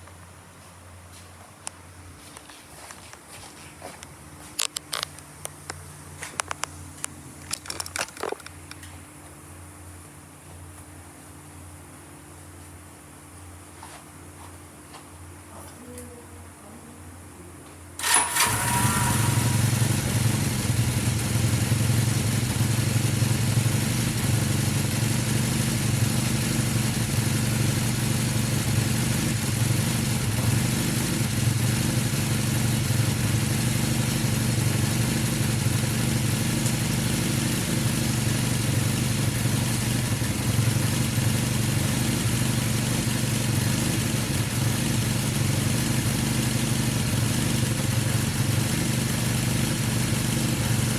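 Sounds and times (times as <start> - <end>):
motorcycle engine starting and idling: 18.0 - 50.9.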